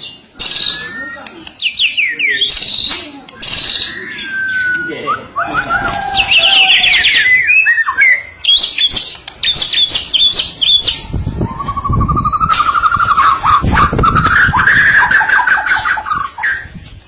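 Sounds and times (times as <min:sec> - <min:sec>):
bird singing trills and whistles: 0:00.0 - 0:16.8
buzzy rising bird trill: 0:03.4 - 0:16.6.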